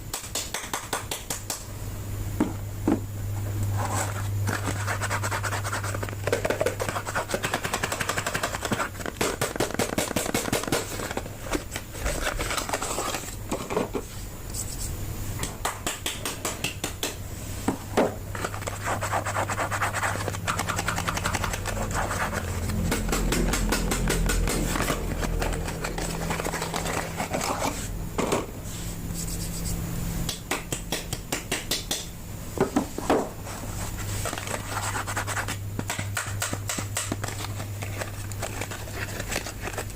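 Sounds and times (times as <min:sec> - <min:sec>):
steady low hum: 0:00.0 - 0:39.9
packaging rustling and scratching: 0:03.8 - 0:14.0, 0:18.3 - 0:28.0, 0:37.0 - 0:39.9.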